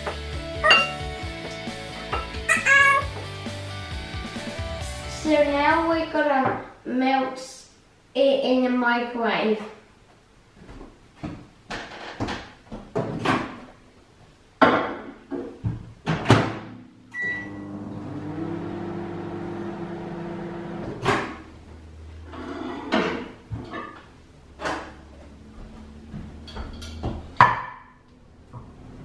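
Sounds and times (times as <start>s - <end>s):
microwave oven humming: 17.0s - 21.1s
short beep: 17.1s - 17.7s.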